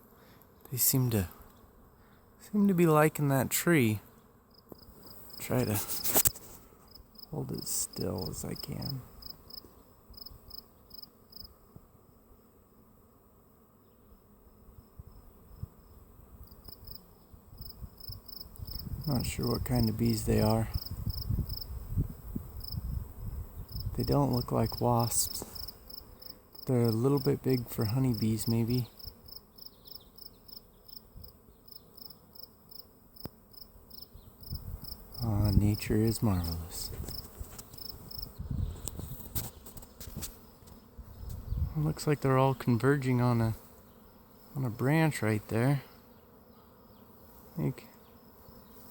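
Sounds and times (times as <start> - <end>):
insect chirping: 4.5 - 11.6, 14.5 - 19.2, 20.5 - 41.7.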